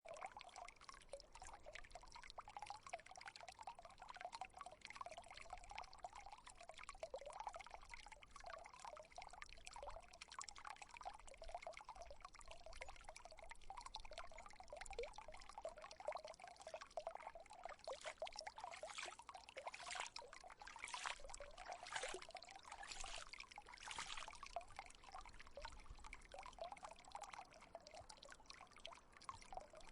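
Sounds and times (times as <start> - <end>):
water fountain trickling and splashing: 0.0 - 29.9.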